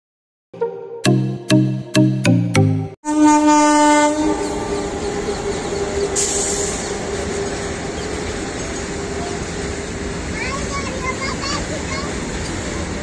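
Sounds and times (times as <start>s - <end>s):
locomotive horn: 3.0s - 9.6s
train rumbling and rattling past: 3.1s - 13.0s.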